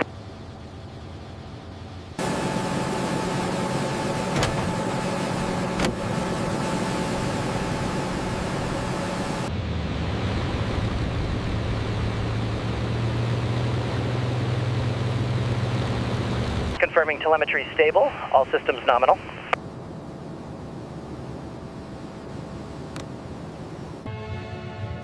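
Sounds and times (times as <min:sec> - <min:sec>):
piston engines droning: 0:00.0 - 0:17.6.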